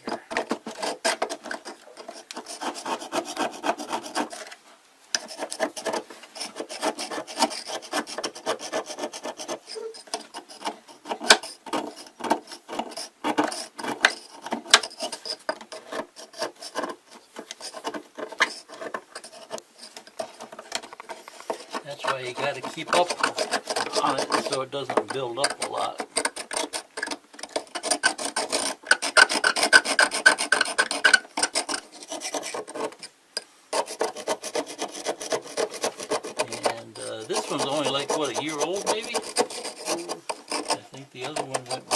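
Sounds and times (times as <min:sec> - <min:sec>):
toothbrush scrubbing mineral scale: 0:00.0 - 0:04.5, 0:05.2 - 0:41.9.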